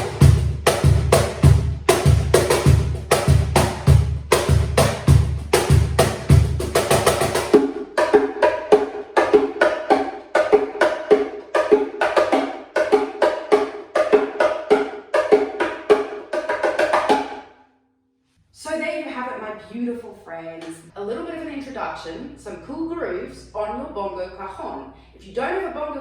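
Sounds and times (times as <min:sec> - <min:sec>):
hand drum slaps and tones: 0:00.0 - 0:17.4.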